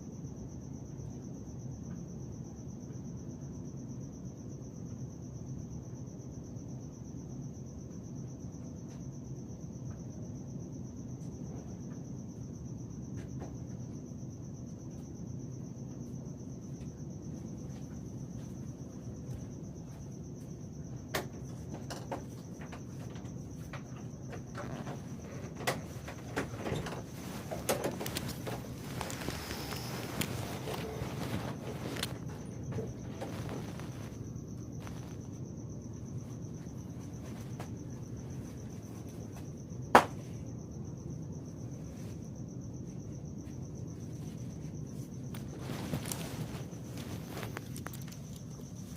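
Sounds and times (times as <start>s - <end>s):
crickets trilling: 0.0s - 48.9s
low background hiss: 22.4s - 48.9s
low background rumble: 22.5s - 48.9s.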